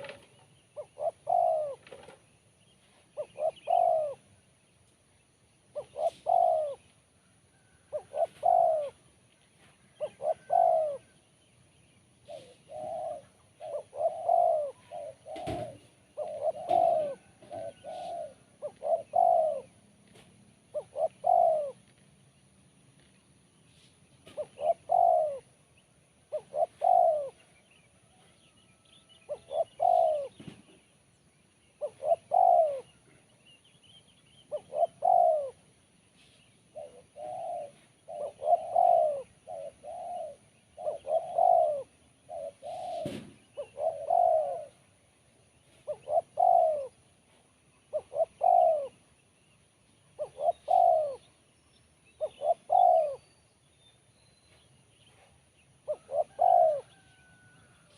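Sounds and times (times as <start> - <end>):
dove cooing: 0.0 - 4.5, 5.6 - 11.4, 12.1 - 22.0, 23.7 - 30.9, 31.8 - 33.4, 34.2 - 53.3, 55.1 - 57.9.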